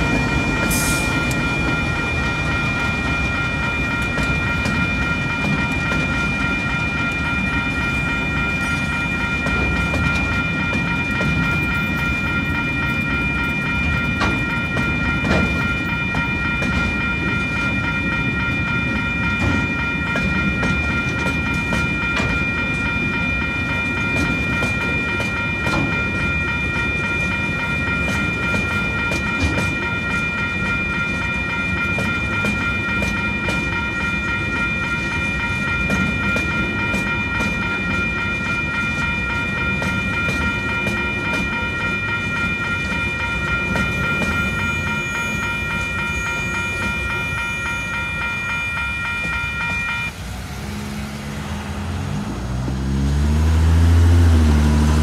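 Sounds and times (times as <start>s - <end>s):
level-crossing warning bell: 0.0s - 55.0s
freight wagons rumbling past: 49.3s - 55.0s
car accelerating away: 50.2s - 55.0s.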